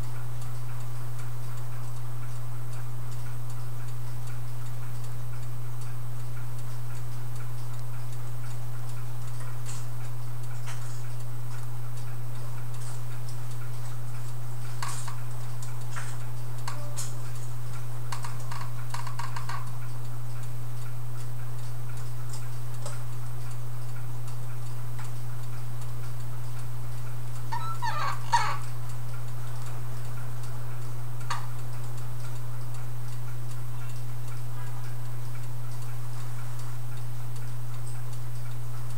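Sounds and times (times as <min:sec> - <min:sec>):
steady low hum: 0:00.0 - 0:38.9
small metallic clicks and taps: 0:18.1 - 0:19.7.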